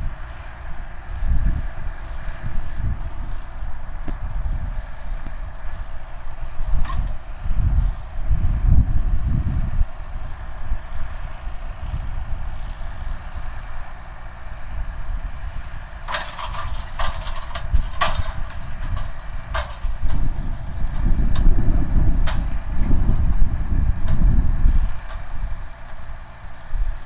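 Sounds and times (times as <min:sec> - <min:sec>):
tractor diesel engine rumble: 0:00.0 - 0:27.0
sharp metallic clanks and clicks: 0:16.1 - 0:20.2.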